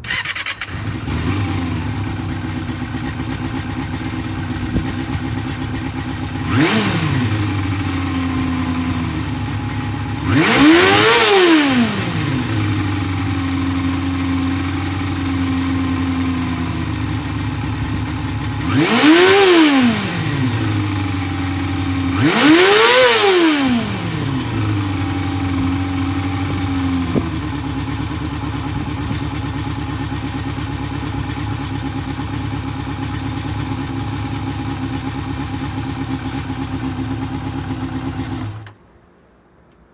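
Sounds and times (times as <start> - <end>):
motorcycle engine idling: 0.0 - 38.8
motorcycle engine revving: 0.0 - 38.8.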